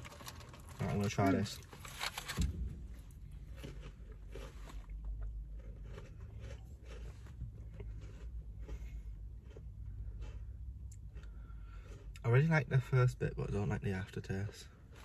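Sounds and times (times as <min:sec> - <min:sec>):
person chewing and crunching: 0:00.0 - 0:02.2, 0:02.8 - 0:15.0
low steady hum: 0:00.0 - 0:15.0.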